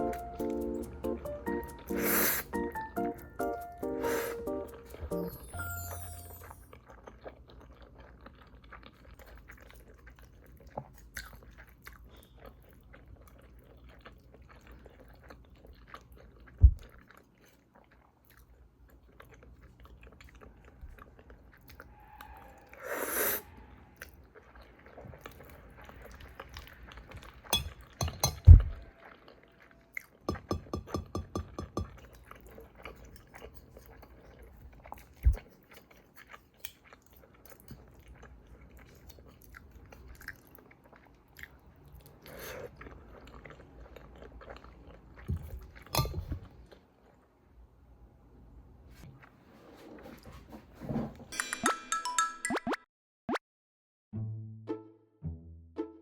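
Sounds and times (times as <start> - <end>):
person chewing: 0.0 - 5.4, 6.3 - 22.0, 24.0 - 47.2.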